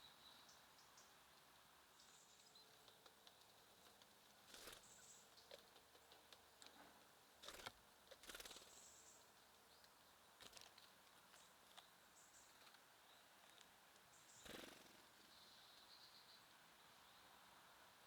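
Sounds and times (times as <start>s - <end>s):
small birds chirping: 0.0s - 17.6s.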